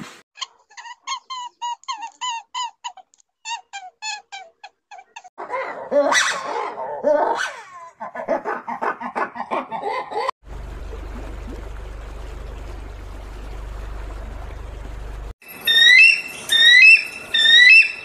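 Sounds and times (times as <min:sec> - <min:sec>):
steady low hum: 0:10.4 - 0:15.3.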